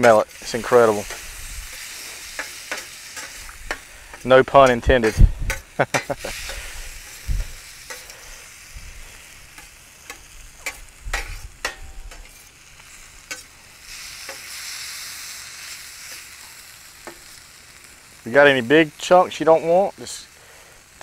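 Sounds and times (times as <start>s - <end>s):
metal spatula scraping pan: 0.0s - 8.5s, 9.5s - 12.5s
chicken and onions sizzling: 0.0s - 21.0s.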